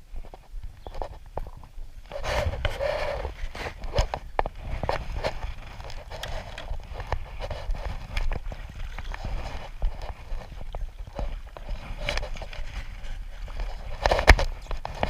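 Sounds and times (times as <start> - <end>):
knocks and scrapes on kayak: 0.2 - 15.0.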